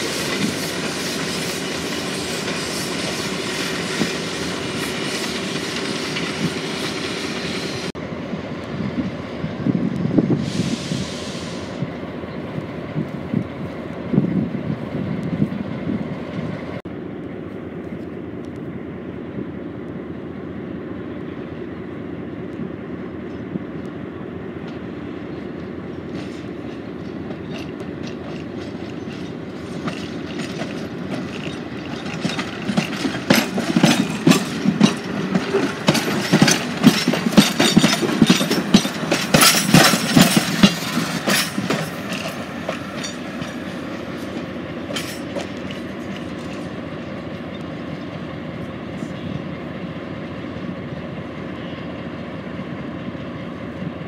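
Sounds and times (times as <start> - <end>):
train hum: 0.0 - 54.0
wheels clicking over rail joints: 25.6 - 48.2.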